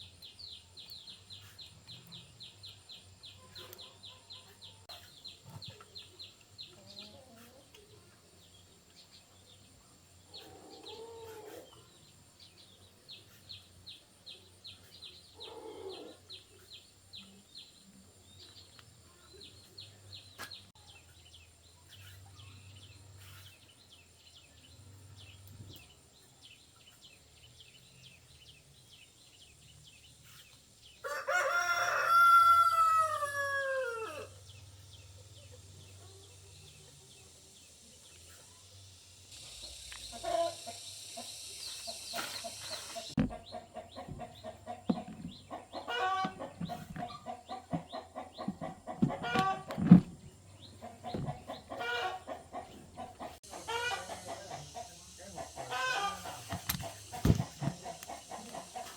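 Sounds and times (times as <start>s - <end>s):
low animal calls: 15.4s - 16.3s
rooster crowing: 31.0s - 34.4s.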